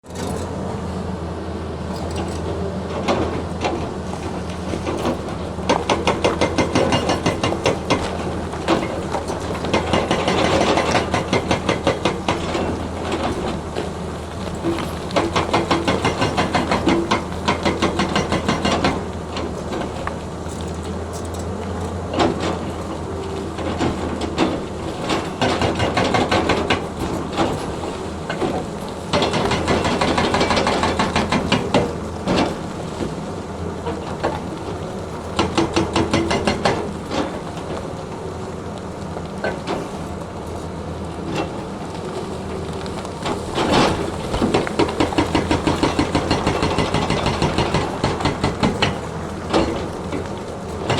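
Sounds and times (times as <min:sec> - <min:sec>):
diesel engine running: 0:00.0 - 0:50.9
rapid hammering knocks: 0:43.6 - 0:50.9.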